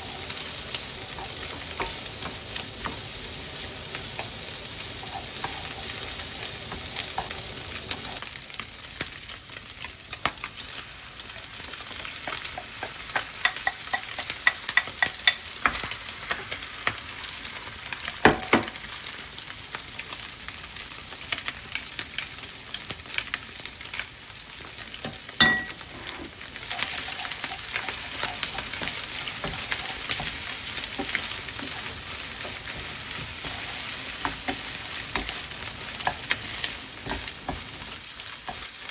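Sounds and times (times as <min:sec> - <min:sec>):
fried rice sizzling in a pan: 0:00.0 - 0:38.9
spatula scraping and clicking on pan: 0:01.0 - 0:03.1, 0:05.0 - 0:08.2, 0:12.0 - 0:17.0, 0:24.9 - 0:38.9.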